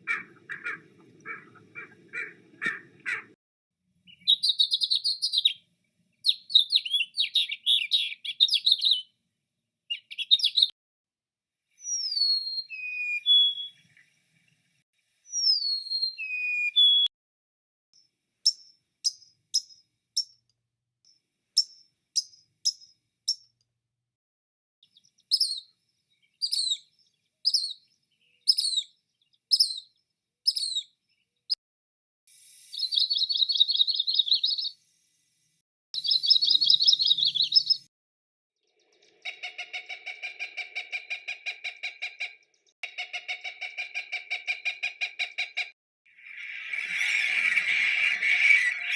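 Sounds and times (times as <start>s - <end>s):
whistled down-slurred bird notes: 4.1s - 5.6s, 6.2s - 9.2s, 9.9s - 10.7s, 11.8s - 13.9s, 15.2s - 17.1s, 24.8s - 26.9s, 27.5s - 30.9s, 32.6s - 34.8s, 36.0s - 37.9s, 46.1s - 48.9s
short sharp repeated bird notes: 18.5s - 20.4s, 21.6s - 23.5s.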